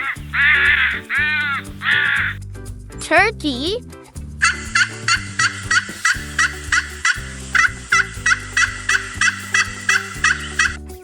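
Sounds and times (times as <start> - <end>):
turkey gobbling: 0.0 - 2.4
light background music: 0.0 - 11.0.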